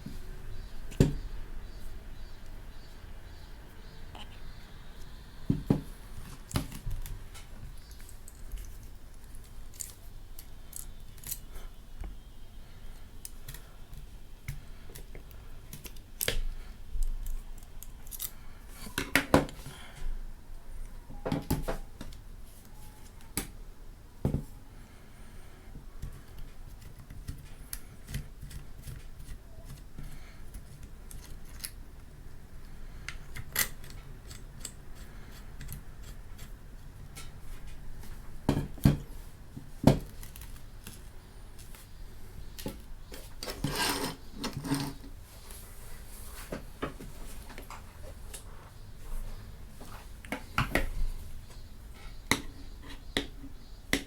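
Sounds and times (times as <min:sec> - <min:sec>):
small hard parts clicking and rattling: 0:07.8 - 0:11.4, 0:17.0 - 0:18.4.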